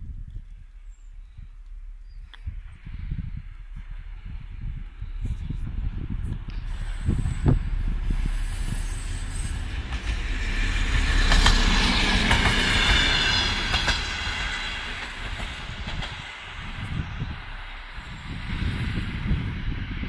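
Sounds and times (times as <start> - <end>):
diesel railcar passing: 0.6 - 20.0
wheels clacking over rail joints: 9.0 - 16.5.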